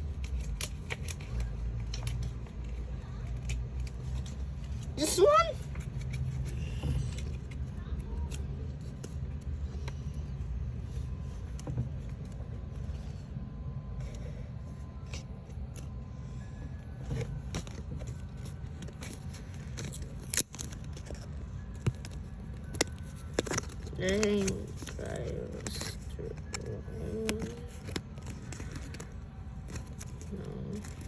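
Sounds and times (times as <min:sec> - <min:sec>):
small clicks and scrapes: 0:00.0 - 0:05.0, 0:05.6 - 0:16.1, 0:16.8 - 0:31.0
steady low hum: 0:00.0 - 0:31.0.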